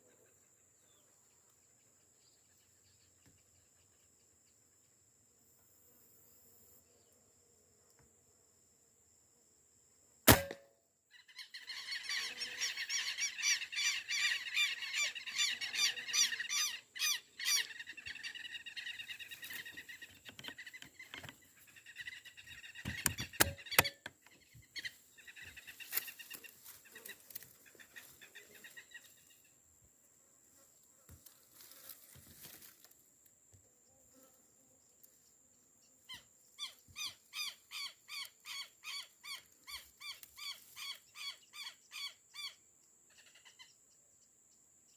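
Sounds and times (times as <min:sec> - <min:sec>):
air rifle firing crack: 0:10.3 - 0:10.7
flock of birds calling: 0:11.4 - 0:23.9.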